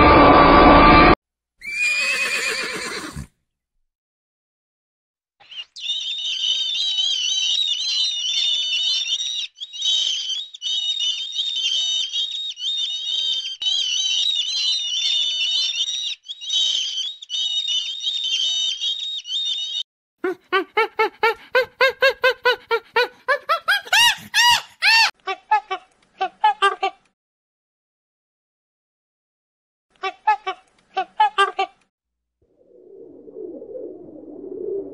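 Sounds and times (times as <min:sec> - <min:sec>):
animal rapid series of calls: 0:05.4 - 0:25.1.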